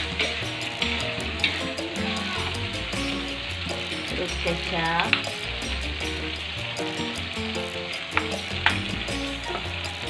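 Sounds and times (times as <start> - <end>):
sauce being poured: 0.0 - 4.2, 5.1 - 10.0
metal spatula stirring: 0.0 - 10.0
paste sizzling in a wok: 0.0 - 10.0
spatula clicking against wok: 6.4 - 10.0.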